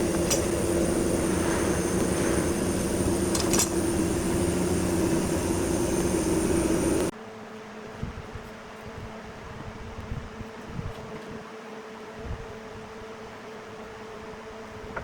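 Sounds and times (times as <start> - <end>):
workshop machine humming: 0.0 - 7.1.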